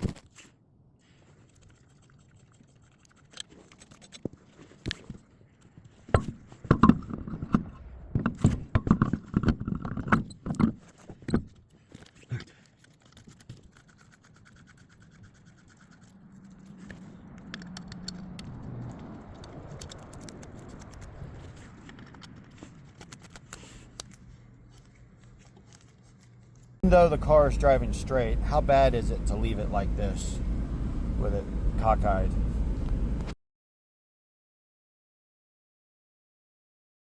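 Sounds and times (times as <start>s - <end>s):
metallic clanks and rattles: 6.2s - 11.6s
car engine low hum: 16.2s - 22.4s, 26.8s - 33.4s.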